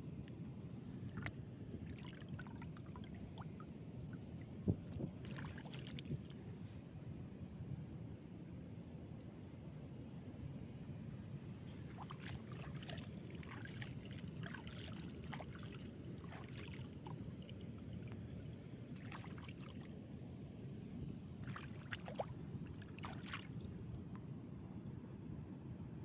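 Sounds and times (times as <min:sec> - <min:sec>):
sea water lapping at shore: 0:00.4 - 0:06.9, 0:11.7 - 0:24.4.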